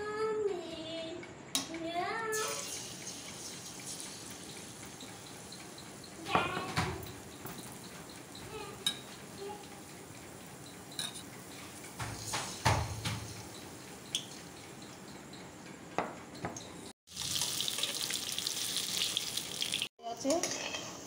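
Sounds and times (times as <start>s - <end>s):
food deep-frying in hot oil: 2.3s - 15.1s, 17.1s - 21.0s
utensil knocking against pan: 4.9s - 9.2s, 11.9s - 14.2s, 16.0s - 16.6s.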